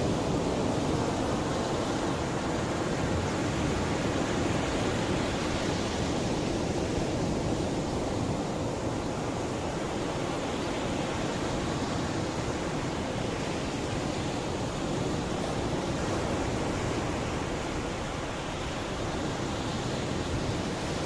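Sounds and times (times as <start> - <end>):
sea waves washing ashore: 0.0 - 21.0.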